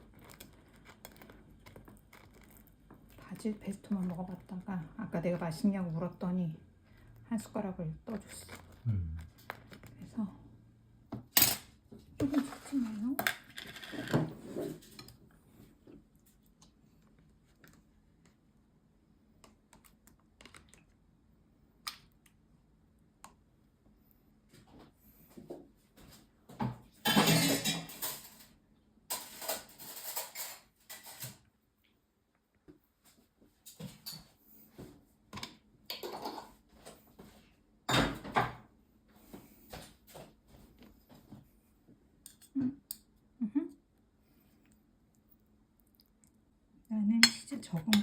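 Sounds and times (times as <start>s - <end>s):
tableware clatter: 27.0s - 31.4s, 35.9s - 36.6s.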